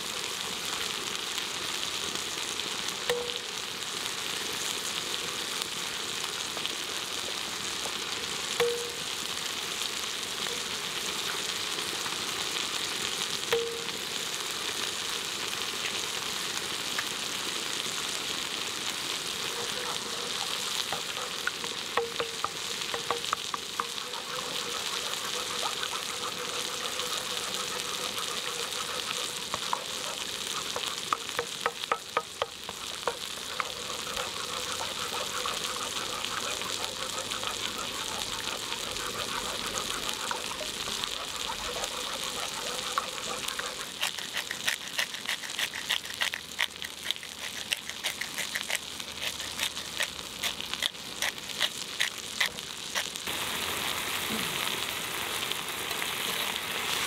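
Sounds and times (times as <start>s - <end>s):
food sizzling in a pan: 0.0s - 57.0s.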